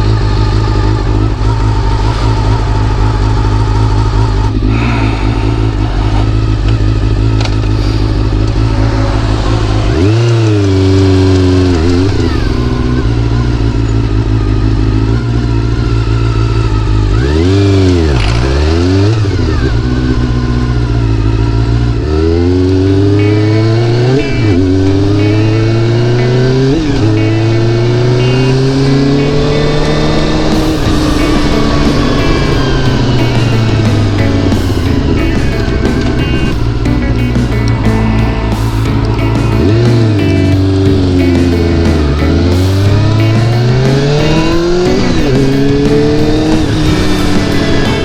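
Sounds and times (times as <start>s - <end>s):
motorcycle accelerating through gears: 0.0s - 48.0s
motorcycle engine revving: 0.0s - 48.0s.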